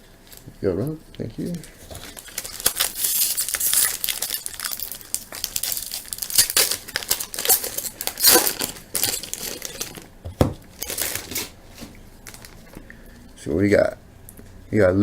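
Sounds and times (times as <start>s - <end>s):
wrapper tearing and crinkling: 1.9s - 10.1s, 10.7s - 12.7s.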